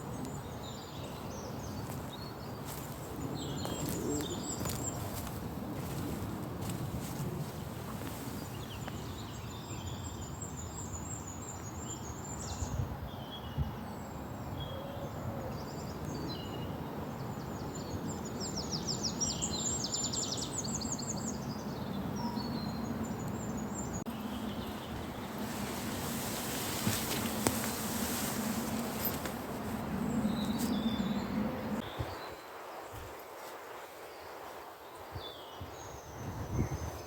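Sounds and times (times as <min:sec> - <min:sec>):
low background noise: 0:23.0 - 0:36.0.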